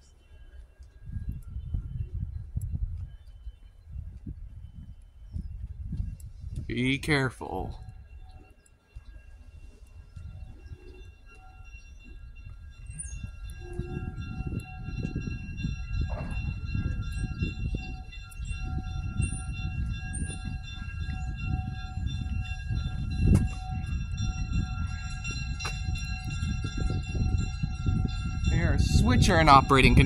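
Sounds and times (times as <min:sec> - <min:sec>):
wind buffeting microphone: 0:00.6 - 0:30.0
diesel locomotive rumble: 0:12.4 - 0:30.0.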